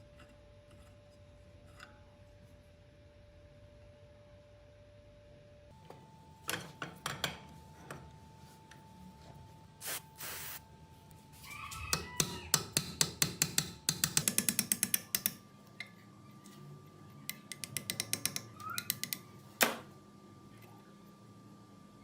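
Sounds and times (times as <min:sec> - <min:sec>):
brief hiss: 0:09.8 - 0:10.6
hand tool clicks and taps: 0:12.5 - 0:15.4, 0:17.3 - 0:19.8.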